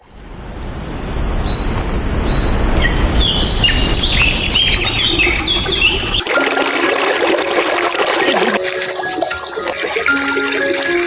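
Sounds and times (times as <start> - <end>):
birds chirping: 0.0 - 6.4
loud low rushing noise: 0.1 - 6.2
background music: 6.2 - 11.0.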